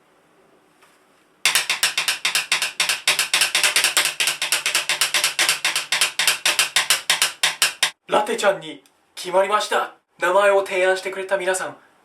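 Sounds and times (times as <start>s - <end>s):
drum roll: 1.5s - 8.0s.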